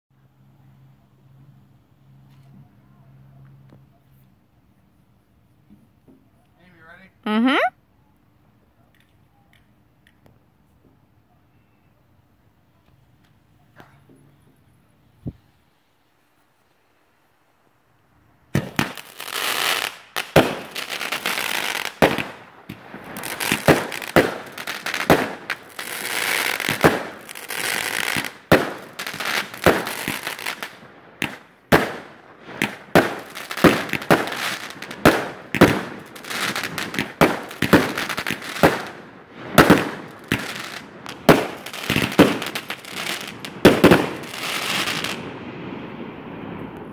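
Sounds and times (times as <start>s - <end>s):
fireworks bangs and crackling: 18.5s - 46.9s.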